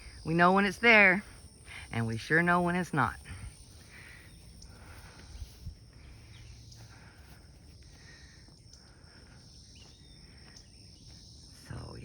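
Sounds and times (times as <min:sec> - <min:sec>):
high-pitched insect chorus: 0:00.0 - 0:12.0
soft footsteps: 0:03.6 - 0:11.9.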